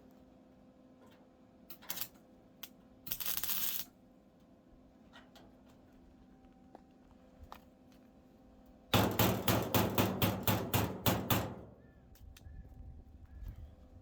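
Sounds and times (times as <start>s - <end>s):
hammer striking steel: 9.0s - 11.7s.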